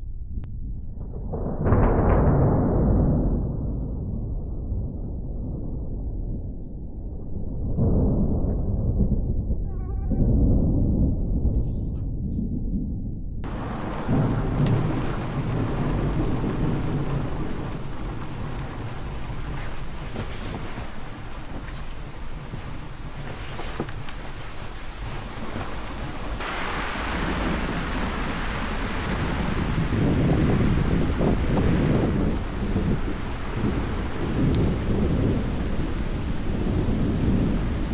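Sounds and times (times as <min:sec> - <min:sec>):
thunder rolling: 0:00.8 - 0:11.6, 0:13.4 - 0:37.9
heavy rain falling: 0:13.4 - 0:37.9.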